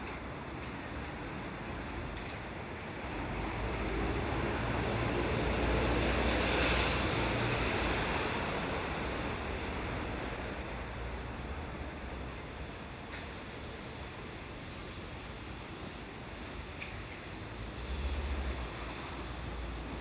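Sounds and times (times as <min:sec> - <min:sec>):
vehicle passing by: 0:03.2 - 0:08.8.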